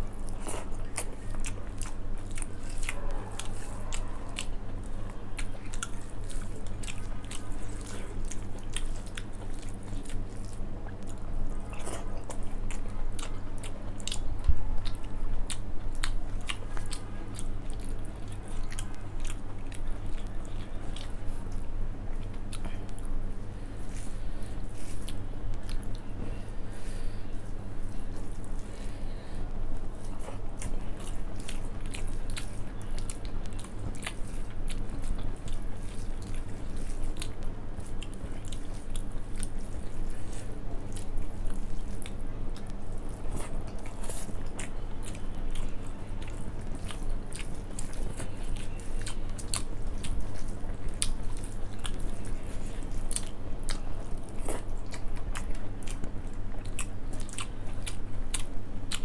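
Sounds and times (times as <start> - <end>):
steady low hum: 0.0 - 59.0
wet chewing: 0.1 - 59.0.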